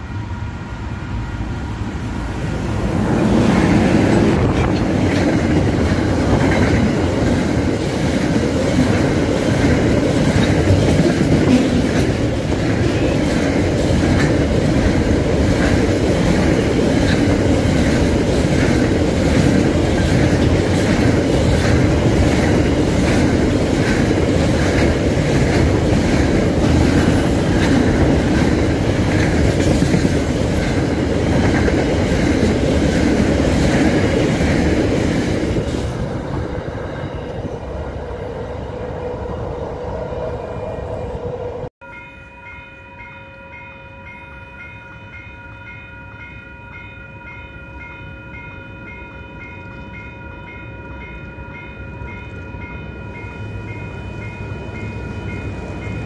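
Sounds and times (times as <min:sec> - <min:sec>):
train wheels rolling on rails: 0:00.0 - 0:41.7.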